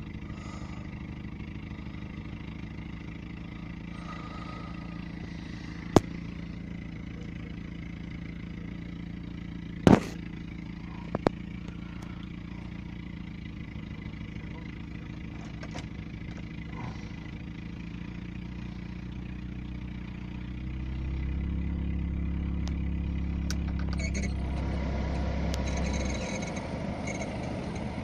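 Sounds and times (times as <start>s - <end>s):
car engine idling: 0.0s - 28.0s
sharp clicks and knocks: 15.4s - 16.5s, 23.4s - 24.3s.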